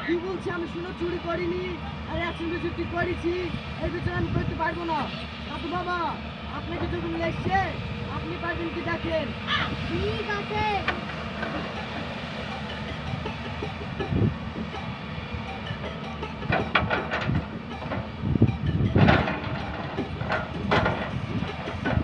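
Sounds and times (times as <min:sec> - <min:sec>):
steady mechanical rumble: 0:00.0 - 0:22.0
sharp clanks and knocks: 0:10.8 - 0:12.0, 0:15.8 - 0:22.0.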